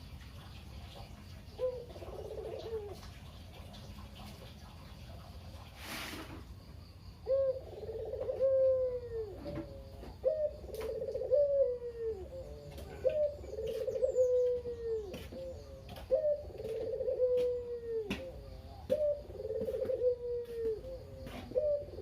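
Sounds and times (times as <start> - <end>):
dove cooing: 1.5 - 3.1, 7.2 - 22.0.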